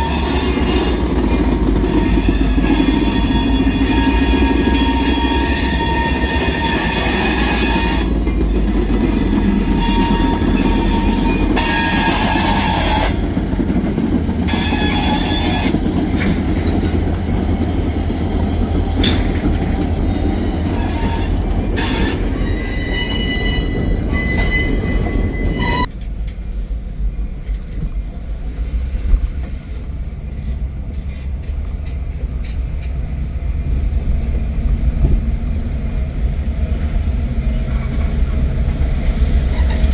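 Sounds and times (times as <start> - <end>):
train wheels squealing: 0.0 - 25.9
freight train rumbling past: 0.0 - 39.9.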